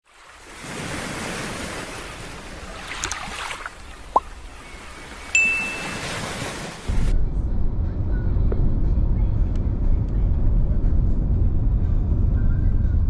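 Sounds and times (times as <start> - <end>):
bright chime: 5.4 - 6.4.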